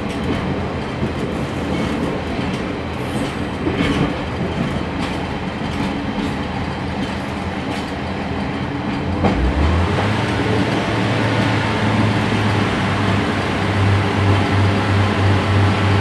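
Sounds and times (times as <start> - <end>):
train wheels rumbling on track: 0.0 - 16.0
low engine drone: 9.2 - 16.0.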